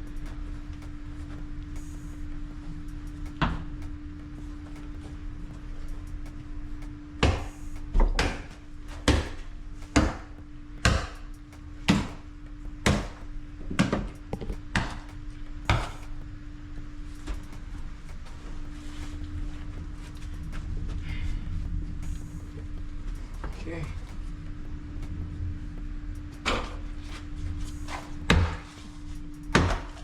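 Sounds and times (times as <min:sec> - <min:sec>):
steady low hum: 0:00.0 - 0:30.0
hammer blows ringing: 0:07.2 - 0:16.2.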